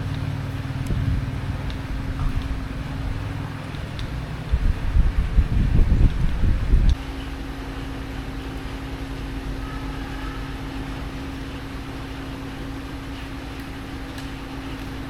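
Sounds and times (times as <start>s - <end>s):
low uneven rumble: 0.0s - 15.0s.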